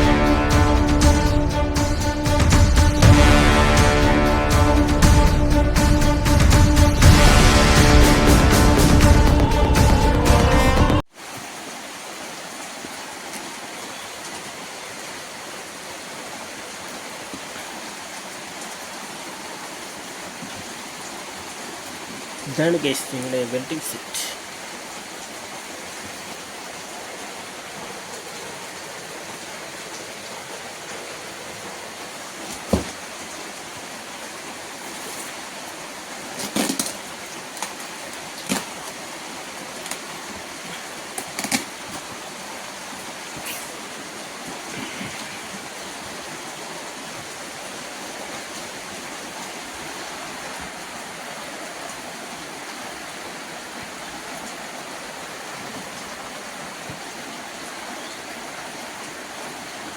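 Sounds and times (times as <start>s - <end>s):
steady hiss: 43.0s - 45.8s.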